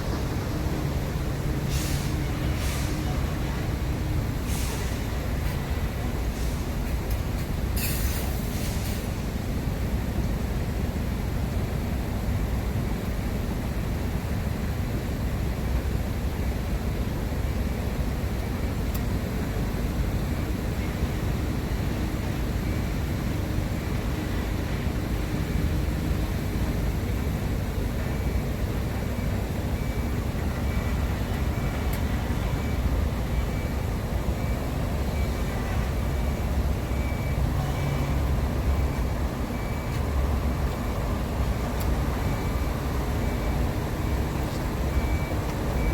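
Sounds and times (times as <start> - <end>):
road traffic rumble: 0.0 - 45.9.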